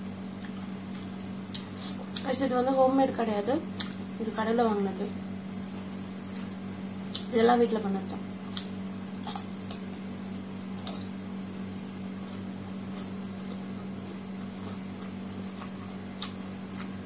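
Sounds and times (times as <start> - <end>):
crunching bites: 8.5 - 10.0, 10.7 - 11.2, 12.2 - 17.0
chewing clicks: 14.4 - 17.0.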